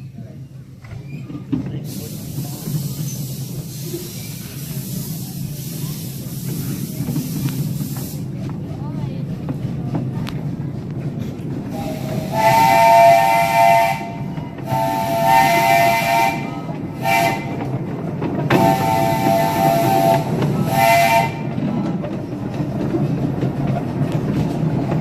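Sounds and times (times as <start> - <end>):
moving train rumble: 0.0 - 25.0
steam hiss: 1.8 - 8.5
steam locomotive whistle blasts: 11.8 - 17.6, 18.5 - 21.5.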